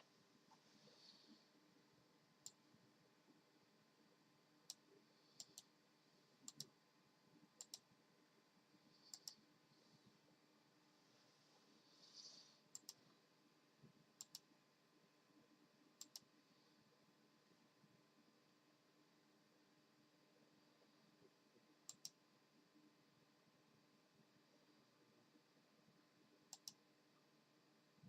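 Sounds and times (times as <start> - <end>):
faint double clicks: 26.5 - 26.8.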